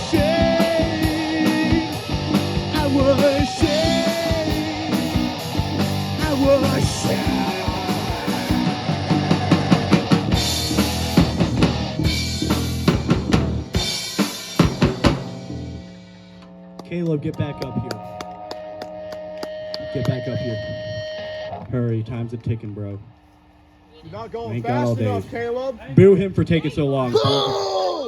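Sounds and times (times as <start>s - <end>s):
live rock band playing: 0.0s - 16.6s, 17.6s - 21.6s
drum hits and cymbal crashes: 0.1s - 16.4s.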